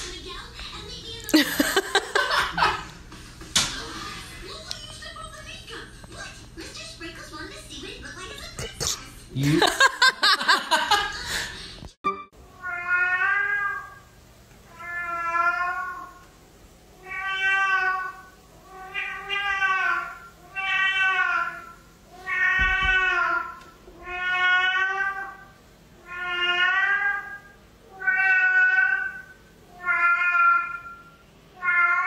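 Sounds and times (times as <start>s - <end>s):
cat meowing loudly: 12.6s - 14.0s, 14.7s - 16.1s, 17.0s - 31.0s, 31.6s - 32.0s.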